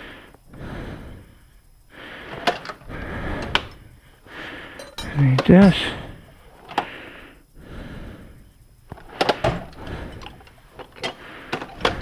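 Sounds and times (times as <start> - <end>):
clinks and knocks: 2.3 - 2.8, 4.7 - 6.9, 8.9 - 12.0
rummaging through tools: 2.3 - 3.8, 4.7 - 6.9, 8.9 - 12.0.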